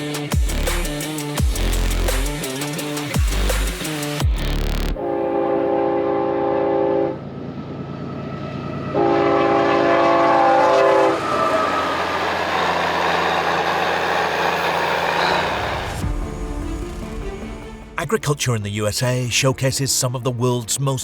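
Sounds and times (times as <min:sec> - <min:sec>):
train horn blasts: 0:05.0 - 0:07.3, 0:08.9 - 0:16.0
passing train rumble: 0:05.0 - 0:18.0.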